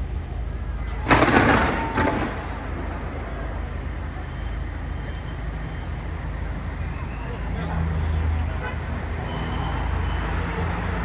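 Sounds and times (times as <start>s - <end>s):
city and crowd noise: 0.0s - 11.0s
firework bangs: 0.3s - 6.7s.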